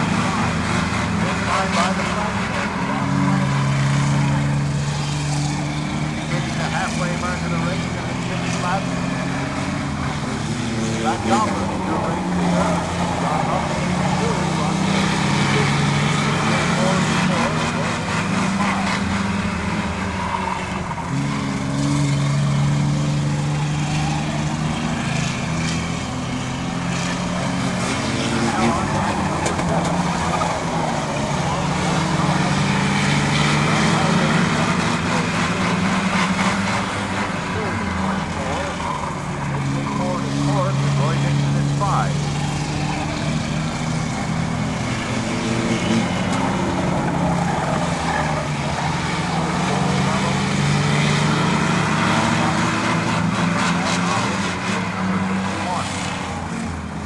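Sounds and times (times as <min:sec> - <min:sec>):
race truck engines droning: 0:00.0 - 0:57.0.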